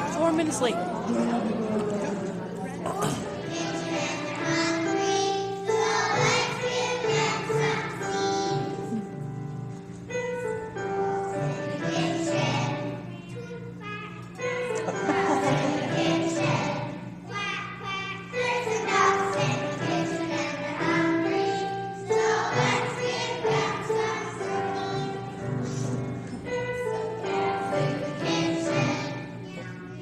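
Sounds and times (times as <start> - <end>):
children singing in choir: 3.0 - 8.8, 11.4 - 13.0, 14.9 - 17.0, 18.3 - 25.6, 27.2 - 29.3.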